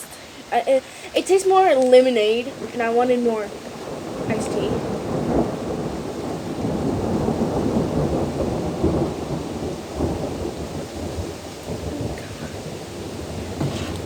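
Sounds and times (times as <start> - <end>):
steady rain: 0.0 - 14.0
rolling thunder: 1.6 - 14.0.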